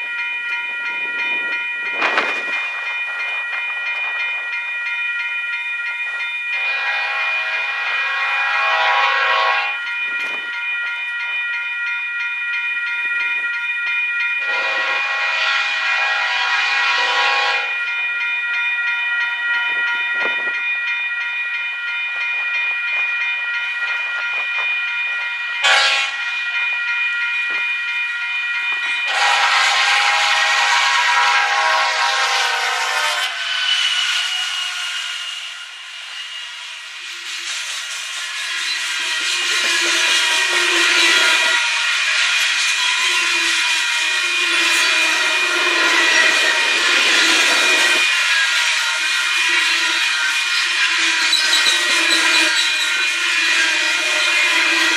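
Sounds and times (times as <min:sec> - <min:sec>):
freight train rolling past: 0:00.0 - 0:54.9
locomotive horn blasts: 0:06.6 - 0:09.8, 0:14.4 - 0:17.8, 0:25.6 - 0:26.3, 0:29.1 - 0:33.4.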